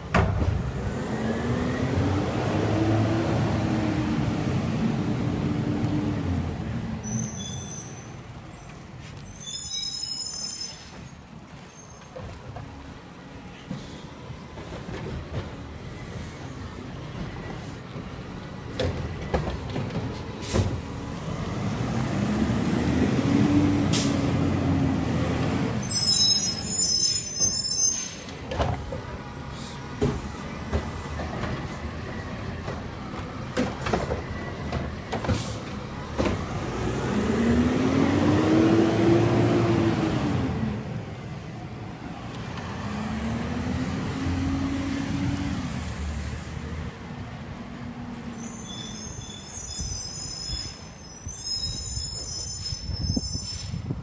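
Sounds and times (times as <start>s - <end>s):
diesel engine revving: 0.6s - 7.0s, 21.2s - 25.8s, 36.4s - 41.1s
high squeal: 7.0s - 12.2s, 25.8s - 28.3s, 48.2s - 53.8s.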